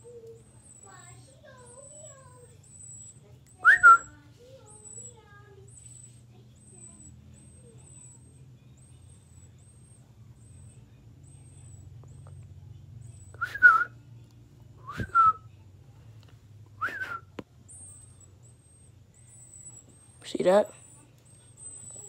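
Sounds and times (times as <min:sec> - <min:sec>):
baby birds cheeping: 0:00.0 - 0:15.8, 0:16.7 - 0:22.0
person whistling calls: 0:03.6 - 0:04.1, 0:13.3 - 0:13.9, 0:14.8 - 0:15.5, 0:16.8 - 0:17.3.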